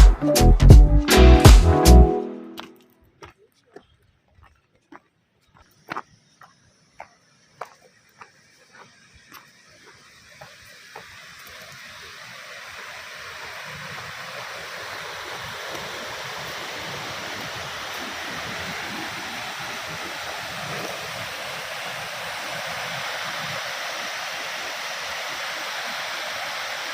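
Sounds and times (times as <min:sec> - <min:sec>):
rushing water: 0:07.0 - 0:26.9.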